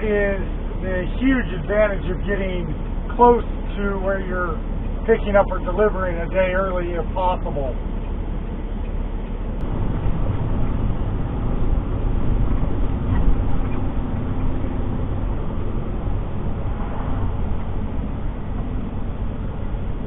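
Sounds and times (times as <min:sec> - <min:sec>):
road noise: 0:00.0 - 0:20.0
truck engine: 0:00.0 - 0:20.0.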